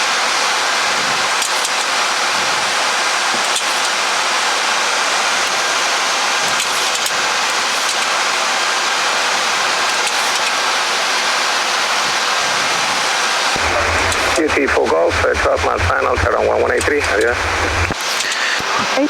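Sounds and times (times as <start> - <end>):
rushing air noise in cockpit: 12.0 - 19.0.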